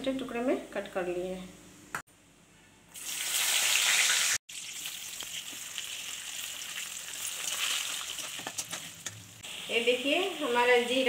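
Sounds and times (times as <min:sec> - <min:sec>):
onions frying: 0:02.9 - 0:11.0
spices sizzling in hot oil: 0:02.9 - 0:11.0.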